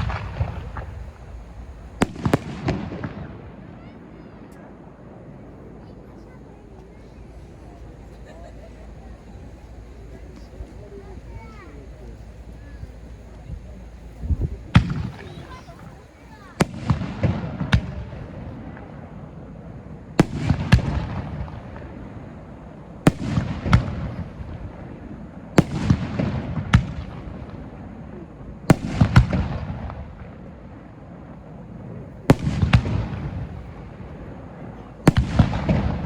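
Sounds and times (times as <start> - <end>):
low rumble: 0.0 - 2.2, 6.7 - 16.1
firework shells bursting: 0.0 - 3.4, 6.5 - 19.0, 32.3 - 36.0.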